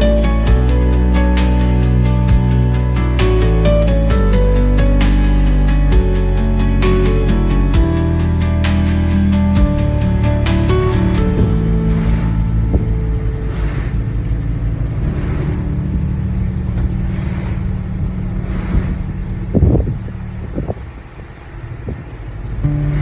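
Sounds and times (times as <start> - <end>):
car engine and road rumble: 0.0 - 23.0
car knocks and bumps: 9.6 - 20.9.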